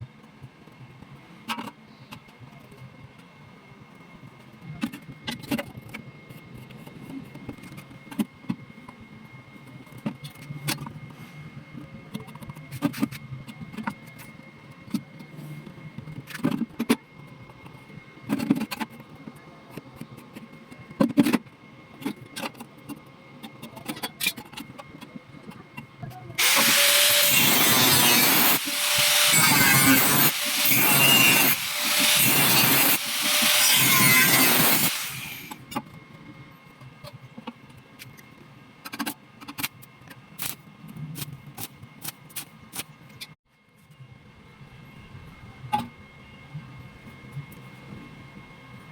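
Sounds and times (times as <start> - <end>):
power tool running: 26.4 - 35.6.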